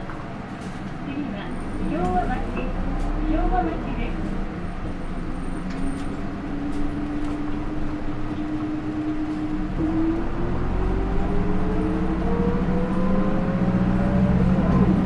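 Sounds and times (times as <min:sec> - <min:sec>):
bus diesel engine running: 0:00.0 - 0:15.0.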